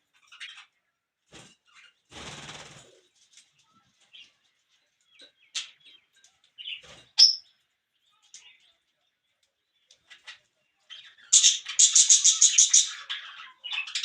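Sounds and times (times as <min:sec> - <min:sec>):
parrots chirping and squawking: 0:00.1 - 0:00.8, 0:10.0 - 0:14.0
parrots flapping wings: 0:01.3 - 0:03.0.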